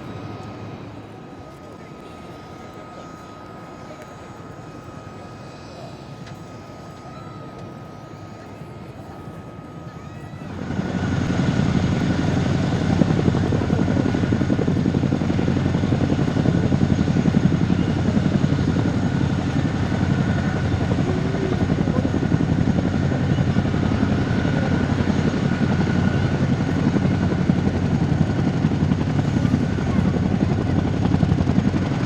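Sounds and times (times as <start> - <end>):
helicopter rotors chopping: 10.4 - 32.0.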